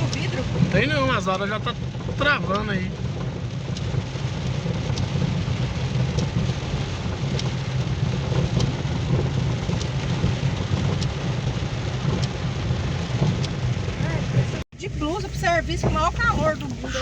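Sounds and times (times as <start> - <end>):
rain and wind hiss: 0.0 - 17.0
faint tick: 2.5 - 2.7, 3.7 - 5.1, 10.9 - 11.2, 12.1 - 12.4.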